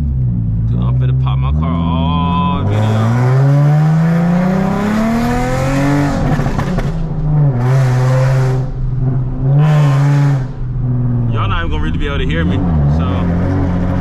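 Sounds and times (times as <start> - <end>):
car engine accelerating: 0.0 - 14.0
exhaust crackling pops: 6.2 - 7.3.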